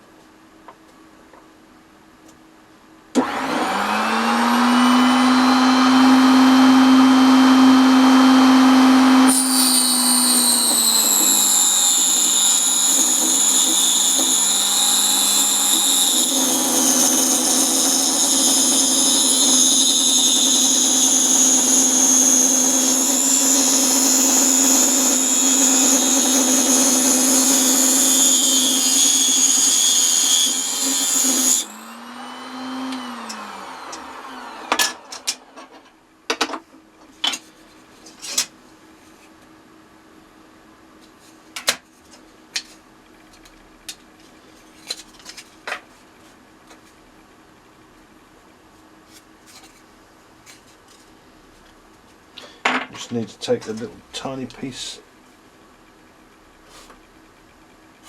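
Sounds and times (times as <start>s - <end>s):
saw blade cutting plywood: 3.2s - 35.4s
table saw motor whining: 3.2s - 35.8s.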